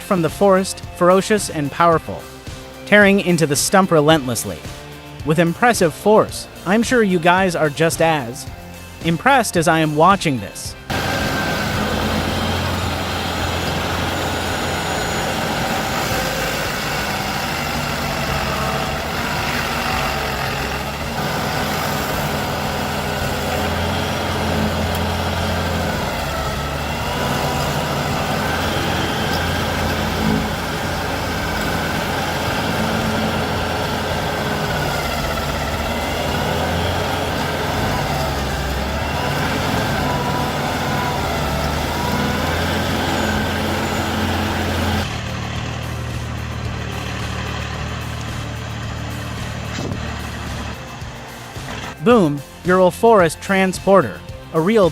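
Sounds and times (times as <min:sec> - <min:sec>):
heavy machine engine humming: 0:10.8 - 0:52.6.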